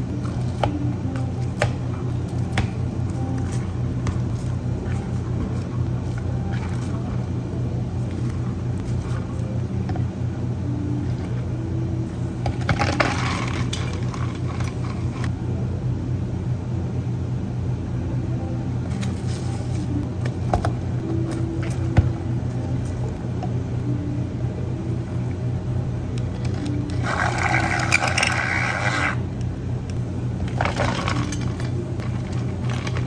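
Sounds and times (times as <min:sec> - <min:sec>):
low machine hum: 0:00.0 - 0:33.0
rattling clatter: 0:30.4 - 0:33.0.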